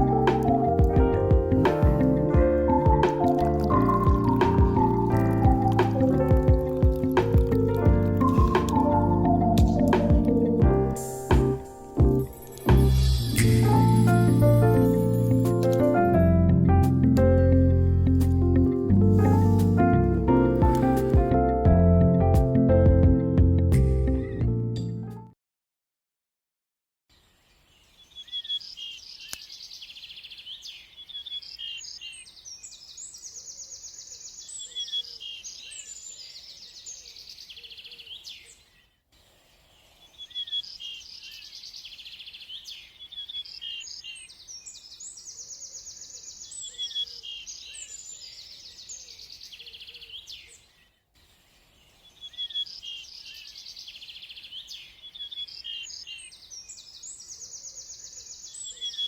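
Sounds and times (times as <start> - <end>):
lower bird calls: 0.0 - 10.7
birds chirping and trilling: 0.0 - 16.0, 27.1 - 59.0.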